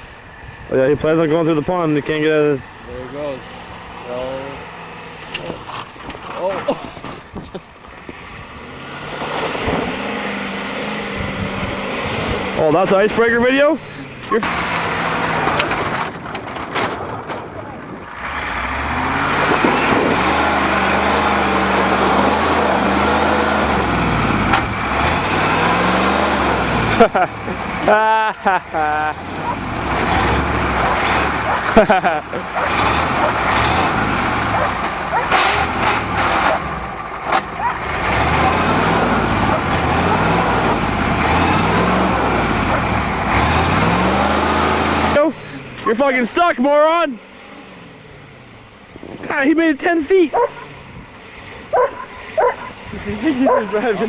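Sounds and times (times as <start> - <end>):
truck engine revving hard: 8.1 - 54.0.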